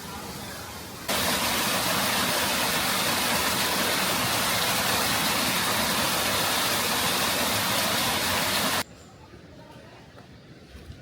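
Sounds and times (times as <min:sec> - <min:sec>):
water rushing over rocks: 0:00.1 - 0:08.8.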